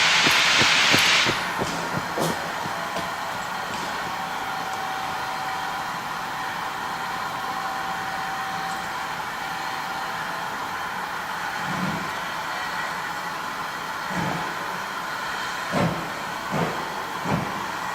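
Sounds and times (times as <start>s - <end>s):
steam hissing: 0.0s - 4.2s.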